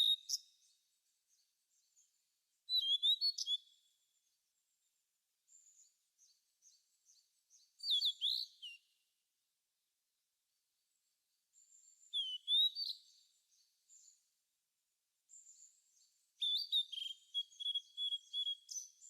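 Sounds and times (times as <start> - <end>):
birds chirping and singing: 0.0 - 4.0, 5.5 - 9.0, 11.6 - 14.3, 15.3 - 19.0.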